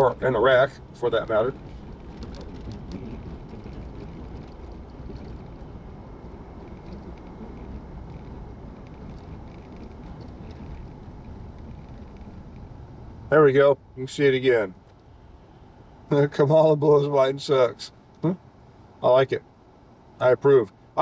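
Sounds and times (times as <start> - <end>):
car road noise rumble: 0.0 - 21.0.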